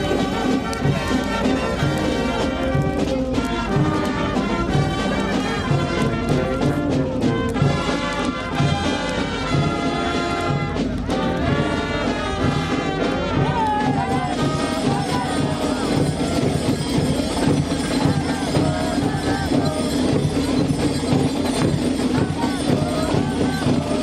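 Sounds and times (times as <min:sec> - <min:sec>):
brass music with steady beat: 0:00.0 - 0:24.0
crowd talking: 0:00.0 - 0:24.0.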